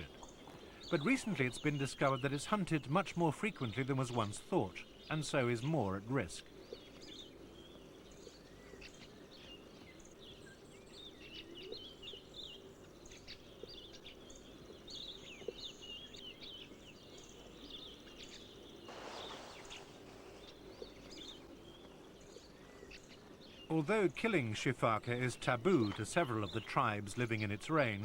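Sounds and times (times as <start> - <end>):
birds chirping and twittering: 0.0 - 28.0
brief hiss: 18.9 - 20.6.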